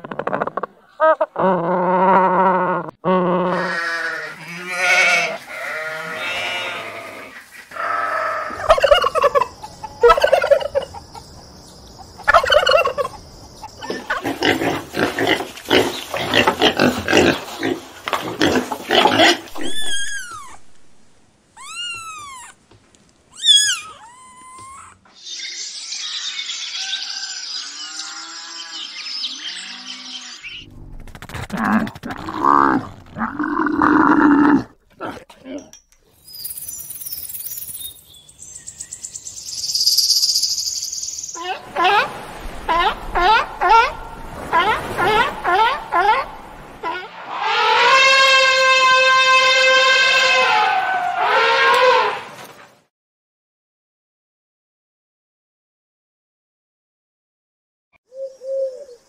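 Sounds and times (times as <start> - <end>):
sheep bleating: 3.5 - 8.1
fowl calls: 4.9 - 11.4, 12.1 - 13.2, 41.4 - 52.4
cat meowing: 21.6 - 22.6, 23.4 - 25.0.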